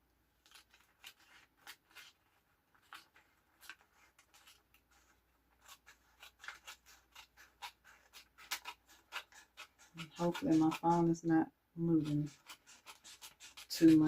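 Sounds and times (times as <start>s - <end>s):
scissors snipping tape: 5.6s - 11.1s.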